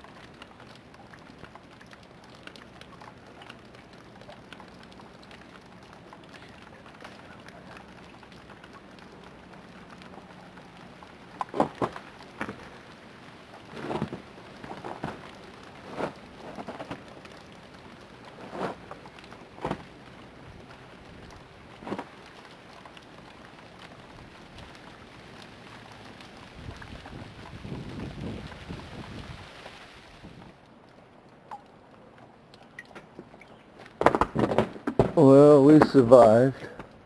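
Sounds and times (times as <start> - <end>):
freezing rain hiss: 0.0 - 30.7, 35.2 - 36.9
tree limbs snapping: 11.4 - 12.6.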